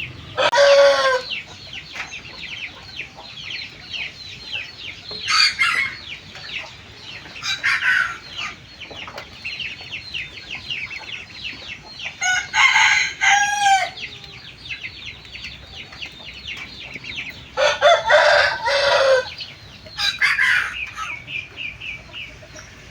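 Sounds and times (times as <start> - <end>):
chicks peeping: 0.0 - 22.9
chicken crowing calls: 0.1 - 1.3, 12.2 - 14.1, 17.6 - 19.4, 20.0 - 21.2.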